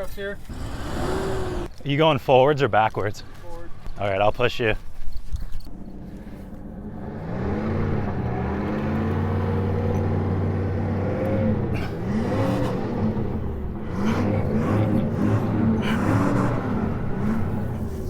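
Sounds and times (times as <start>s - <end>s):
car engine revving: 0.4s - 1.7s, 6.6s - 18.0s.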